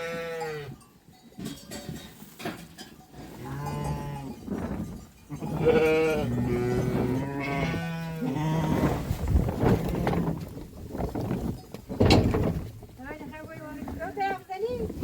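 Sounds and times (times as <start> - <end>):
sheep bleating: 5.3 - 8.8.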